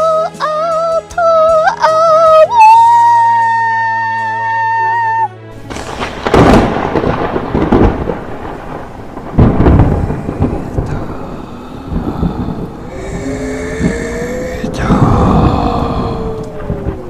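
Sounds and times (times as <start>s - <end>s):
rolling thunder rumbles: 5.5s - 17.0s.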